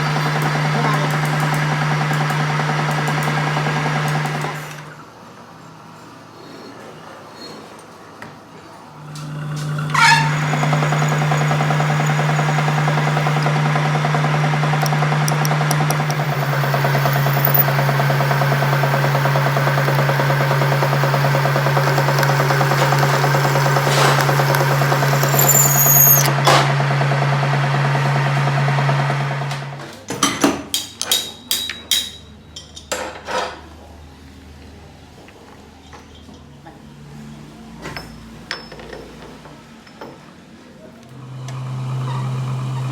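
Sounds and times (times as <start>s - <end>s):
electrical hum: 9.0s - 26.4s
arc welding crackling: 9.6s - 26.3s.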